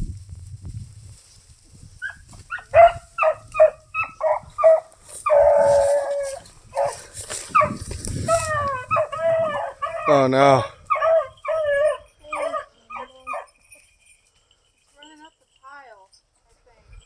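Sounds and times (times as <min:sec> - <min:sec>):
hunting dog yelping and baying: 0:02.0 - 0:13.6.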